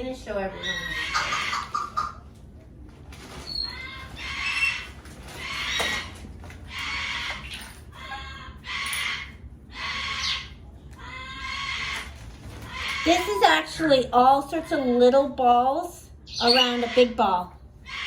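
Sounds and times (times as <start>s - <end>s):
parrot squawking: 0.3s - 2.3s, 3.4s - 14.0s, 16.2s - 18.0s.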